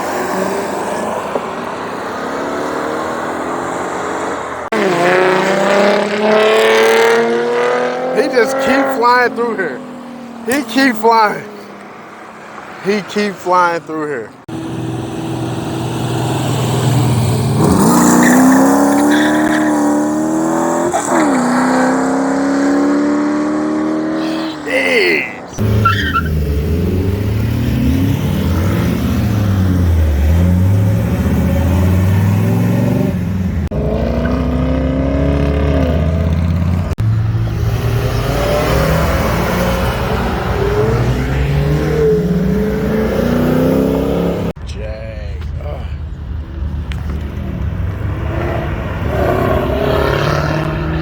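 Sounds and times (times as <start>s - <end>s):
car engines revving hard: 0.0s - 44.6s, 46.2s - 51.0s
deep lumpy engine with throttle blips: 4.6s - 11.8s, 25.5s - 51.0s.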